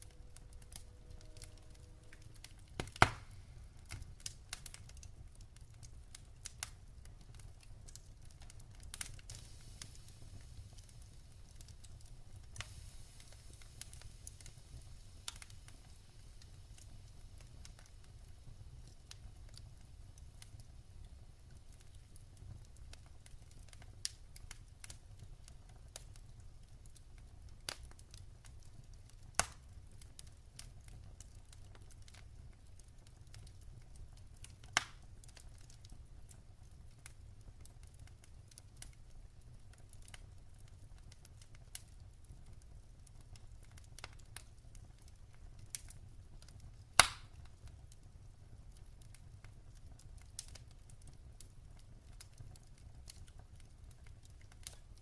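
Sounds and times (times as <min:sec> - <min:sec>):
low steady rumble: 0:00.0 - 0:03.9
wood fire crackling: 0:00.0 - 0:55.0.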